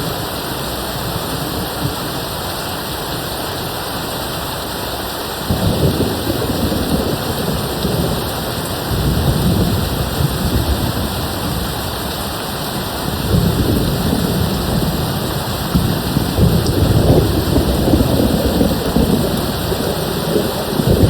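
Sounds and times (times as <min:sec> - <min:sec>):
rain hissing: 0:00.0 - 0:21.0
distant thunder rolling: 0:05.5 - 0:21.0.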